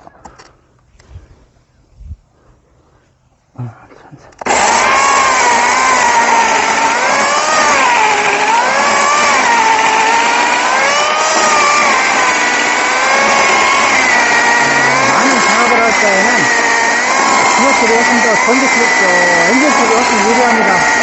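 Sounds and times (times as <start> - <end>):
chainsaw cutting logs: 4.4 - 21.0.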